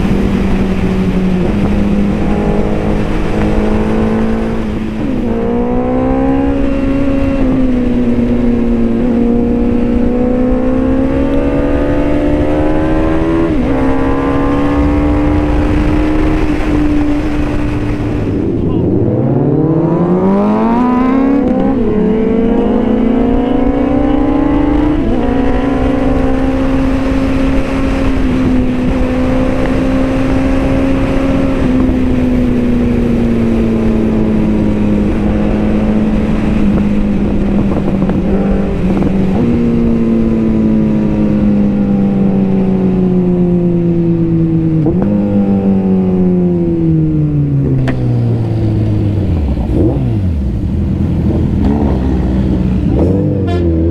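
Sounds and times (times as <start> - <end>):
motorcycle engine accelerating: 0.0 - 53.9.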